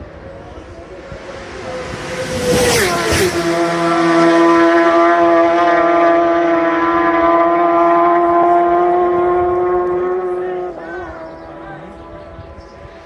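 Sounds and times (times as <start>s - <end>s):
motorcycle engine high revs: 1.0s - 11.4s.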